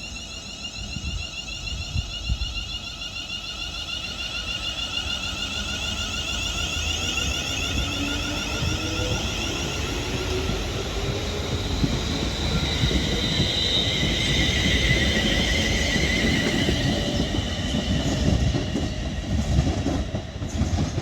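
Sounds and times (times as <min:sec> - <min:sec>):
electric train motor whine: 0:00.0 - 0:20.4.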